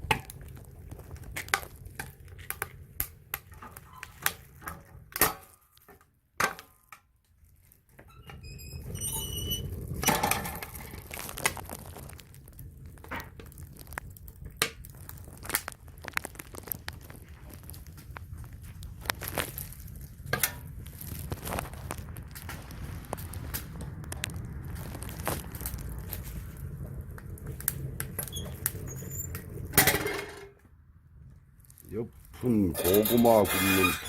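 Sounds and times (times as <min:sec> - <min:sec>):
firewood and metal clattering: 0:00.0 - 0:34.0
rustling: 0:08.6 - 0:30.4, 0:31.4 - 0:34.0.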